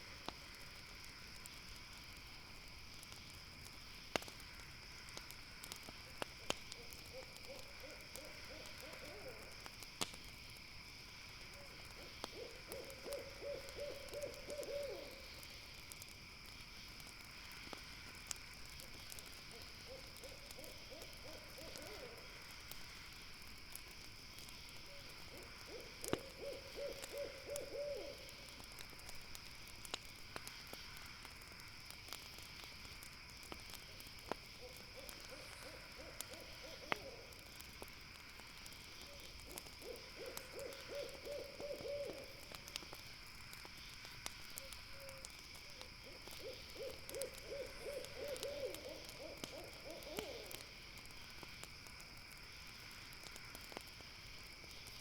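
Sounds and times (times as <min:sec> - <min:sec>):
sharp crackles: 0:00.0 - 0:55.0
owl trilling hoots: 0:06.8 - 0:09.5, 0:11.6 - 0:15.2, 0:19.5 - 0:22.2, 0:24.9 - 0:28.2, 0:34.6 - 0:37.4, 0:39.1 - 0:42.3, 0:46.0 - 0:50.6.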